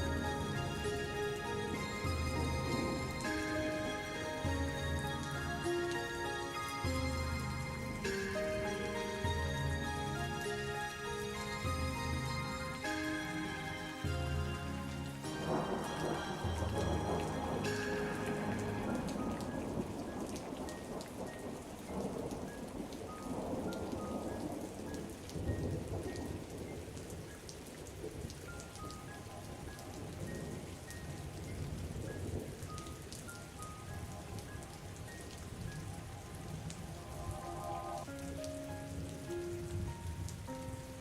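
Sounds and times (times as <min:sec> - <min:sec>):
rain pattering: 0:00.0 - 0:41.0
soft slow melody: 0:00.0 - 0:41.0
low rolling thunder: 0:00.1 - 0:05.0, 0:15.3 - 0:33.0.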